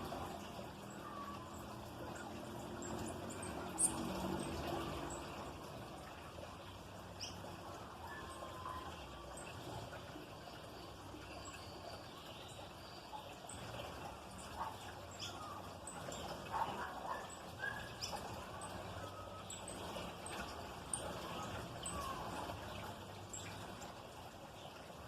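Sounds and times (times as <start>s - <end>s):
songbirds chirping: 0.0s - 25.0s.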